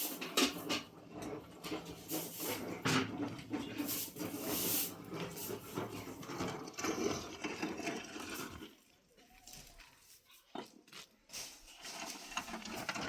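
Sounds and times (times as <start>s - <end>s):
broom sweeping the ground: 0.0s - 0.7s, 1.6s - 3.0s, 3.6s - 6.2s, 9.4s - 13.0s.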